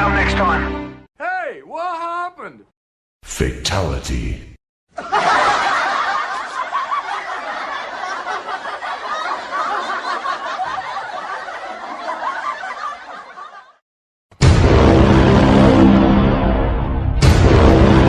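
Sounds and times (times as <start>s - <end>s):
laughter: 4.9s - 13.8s
loud burst of music: 14.4s - 18.0s.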